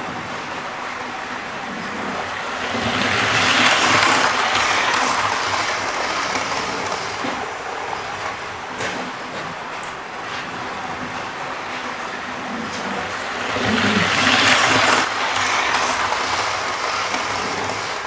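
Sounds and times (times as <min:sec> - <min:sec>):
model train running on track: 0:00.0 - 0:18.0.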